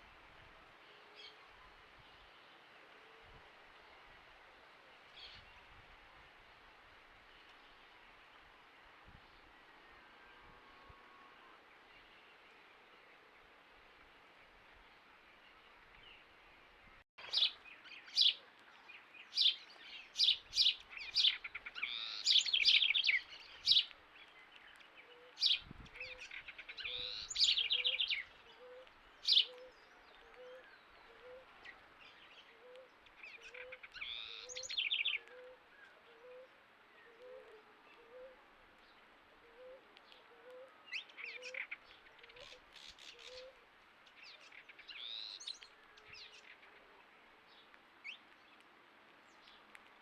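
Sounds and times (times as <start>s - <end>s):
wild birds calling: 19.3s - 38.4s, 39.4s - 46.9s.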